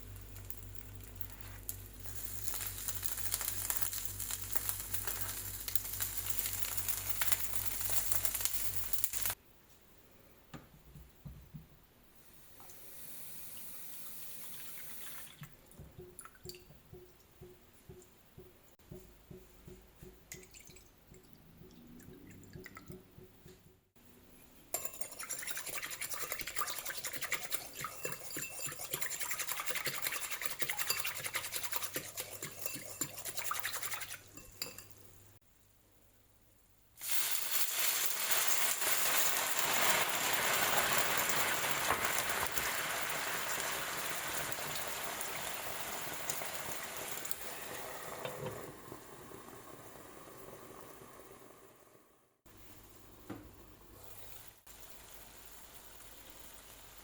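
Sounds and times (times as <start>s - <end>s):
stirring and scraping in a bowl: 24.7s - 35.0s.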